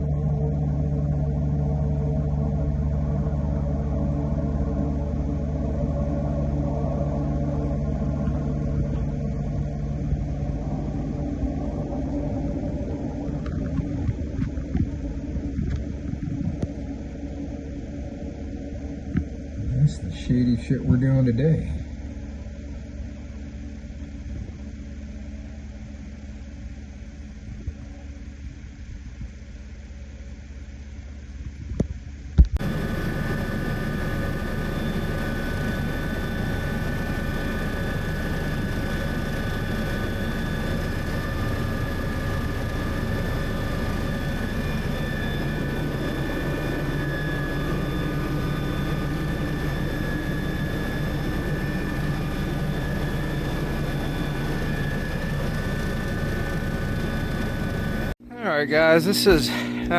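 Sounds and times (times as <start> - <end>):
helicopter engines and rotor: 0.0 - 20.6, 32.6 - 58.2
high turbine whine: 0.0 - 31.4, 32.1 - 59.9.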